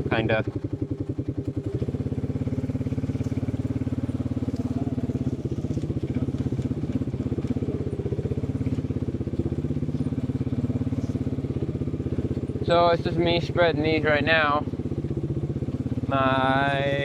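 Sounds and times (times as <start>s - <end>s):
vehicle engine throbbing: 0.0s - 17.0s.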